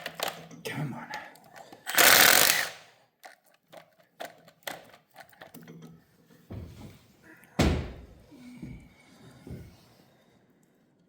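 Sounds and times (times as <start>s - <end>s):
heavy metal thunk: 7.6s - 8.2s.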